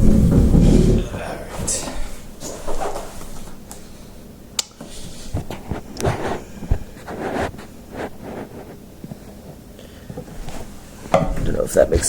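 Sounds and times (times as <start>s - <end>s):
knocks: 0.0s - 1.8s
packaging rustling and scraping: 5.3s - 9.6s.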